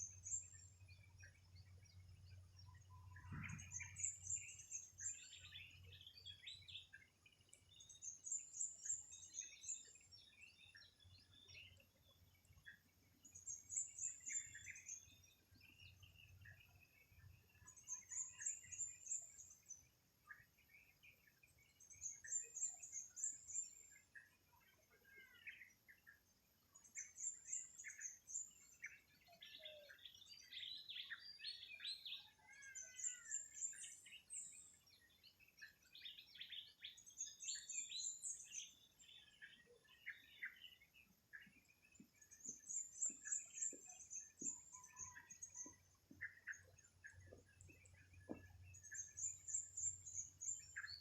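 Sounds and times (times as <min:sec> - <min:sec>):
birds chirping and whistling: 0:02.3 - 0:07.0, 0:26.9 - 0:51.0.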